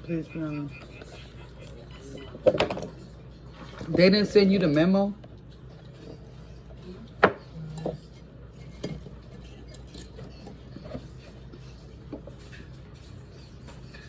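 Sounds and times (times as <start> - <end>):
cutlery and dishes clinking: 7.3 - 14.0.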